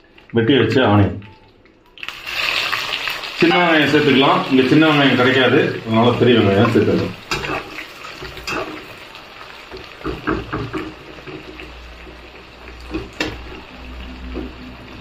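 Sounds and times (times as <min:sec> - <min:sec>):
onions sizzling in hot oil: 0:02.0 - 0:15.0
metal spatula scraping pan: 0:06.6 - 0:08.9.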